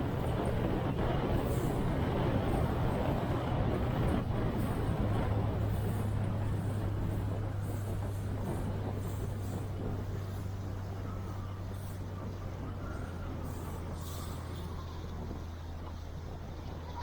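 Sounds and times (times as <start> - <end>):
motorboat engine running: 0.0 - 17.0.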